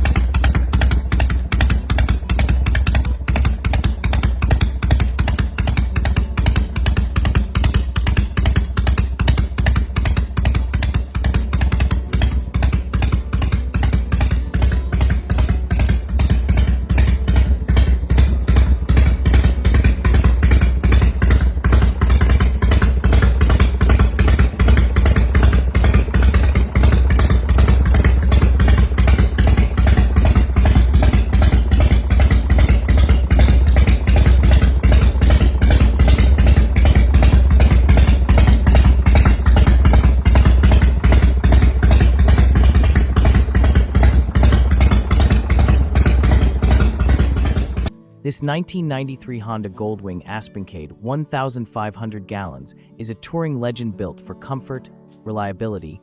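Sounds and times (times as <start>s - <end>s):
motorcycle engine idling: 0.0s - 48.0s.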